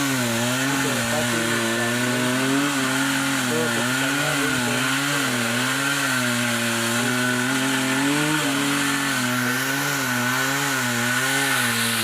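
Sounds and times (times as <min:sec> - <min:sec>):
chainsaw engine running: 0:00.0 - 0:12.0.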